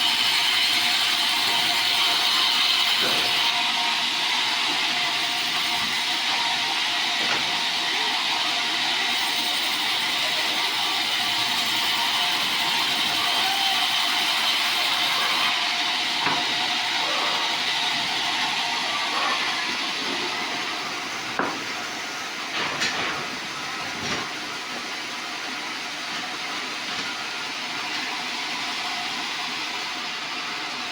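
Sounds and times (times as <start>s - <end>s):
bandsaw cutting log: 0.0s - 24.8s.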